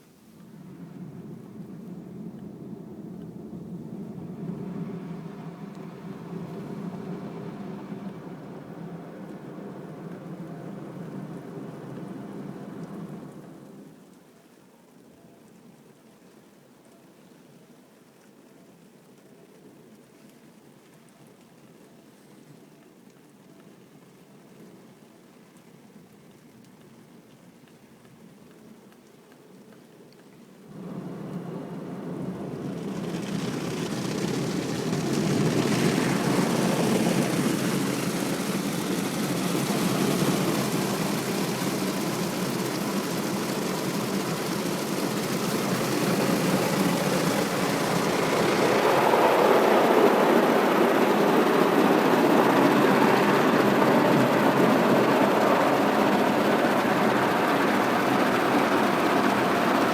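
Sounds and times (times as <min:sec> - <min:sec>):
car wash water spray and machinery: 0:00.5 - 0:13.8, 0:30.7 - 0:59.9.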